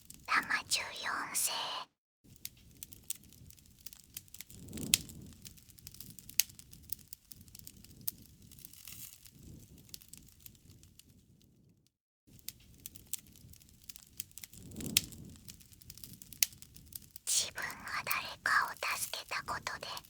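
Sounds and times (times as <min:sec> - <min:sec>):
wood fire crackling: 0:02.5 - 0:11.0, 0:12.4 - 0:20.0.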